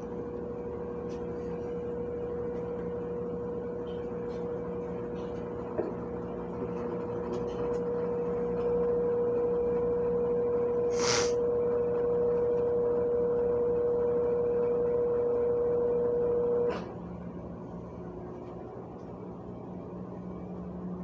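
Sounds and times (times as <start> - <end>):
washing machine whine: 0.0 - 21.0
brief hiss: 10.9 - 11.4.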